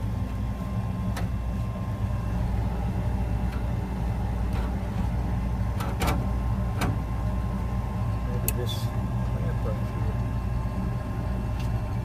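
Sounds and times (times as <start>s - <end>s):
faint steady whine: 0.0s - 12.0s
gas furnace burner rumbling: 0.0s - 12.0s.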